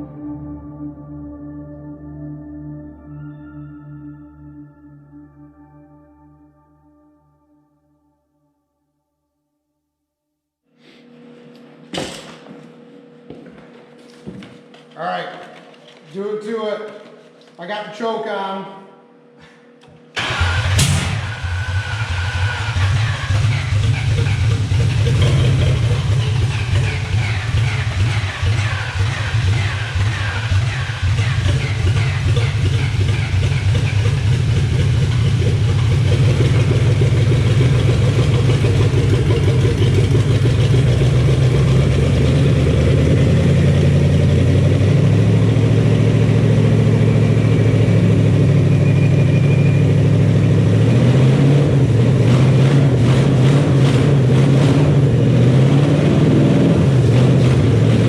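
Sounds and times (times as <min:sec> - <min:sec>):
engine running on choke: 0:20.2 - 0:58.0.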